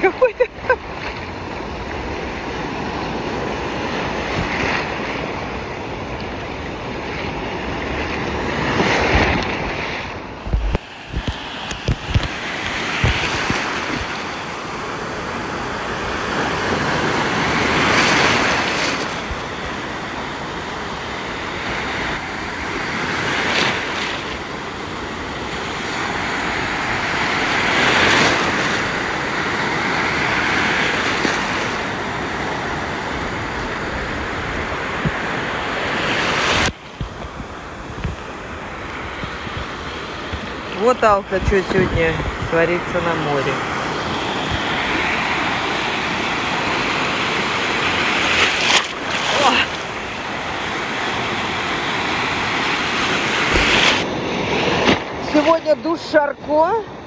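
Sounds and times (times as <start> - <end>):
heavy waves breaking: 0.0 - 57.0
wind thumps on microphone: 4.1 - 14.4, 33.0 - 45.4, 52.6 - 55.4.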